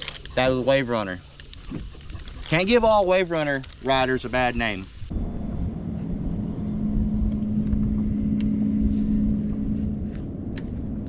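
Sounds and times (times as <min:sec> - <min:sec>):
steady hum: 0:04.9 - 0:11.0
boat motor rumble: 0:05.2 - 0:11.0.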